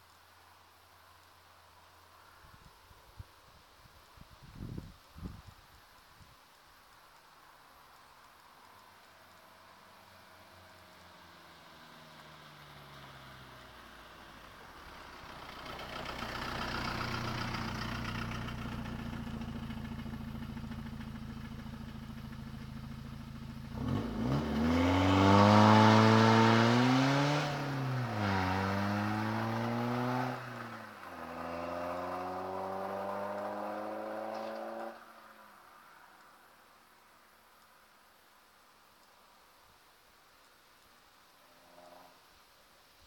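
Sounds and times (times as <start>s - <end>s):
diesel car engine accelerating: 10.2s - 35.1s.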